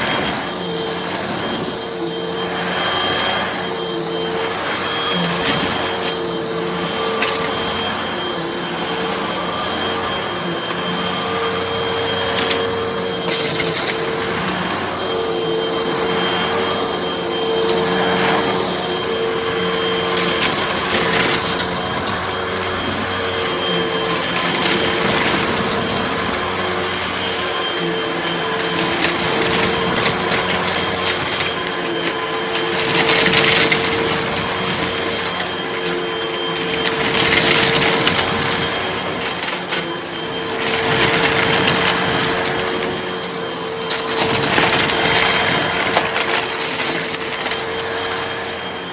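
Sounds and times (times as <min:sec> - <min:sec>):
vacuum cleaner motor hum: 0:00.0 - 0:48.9
debris crackling and rattling: 0:39.2 - 0:47.8.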